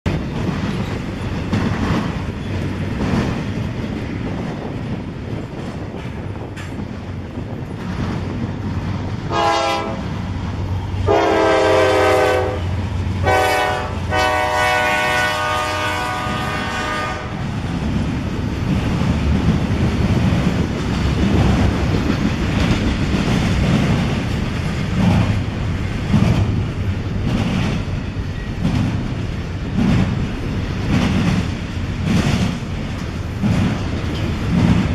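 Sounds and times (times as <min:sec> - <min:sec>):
freight train rumble and wheel clatter: 0:00.0 - 0:34.9
locomotive air horn blasts: 0:09.3 - 0:10.1, 0:11.0 - 0:17.4.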